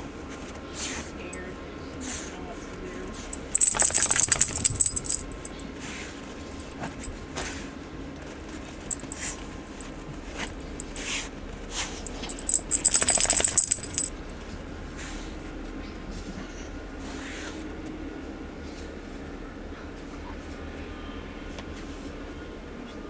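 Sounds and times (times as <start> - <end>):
dog collar tags jingling: 3.1 - 5.6, 8.9 - 10.0, 12.0 - 14.3.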